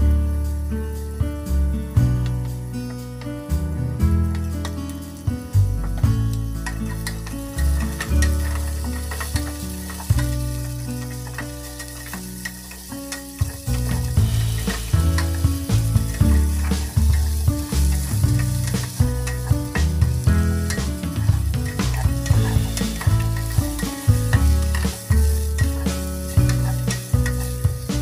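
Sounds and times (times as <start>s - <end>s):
vegetables sizzling in a pot: 0.0s - 28.0s
wooden spatula scraping a pot: 5.8s - 28.0s.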